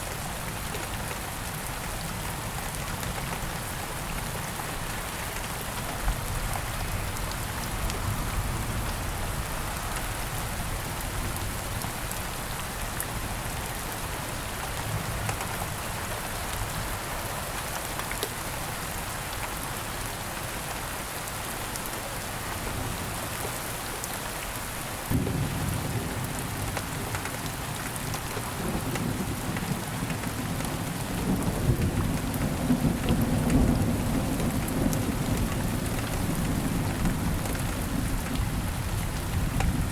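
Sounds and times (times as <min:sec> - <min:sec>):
steady rain falling: 0:00.0 - 0:39.9
low rumble of thunder: 0:25.1 - 0:39.9.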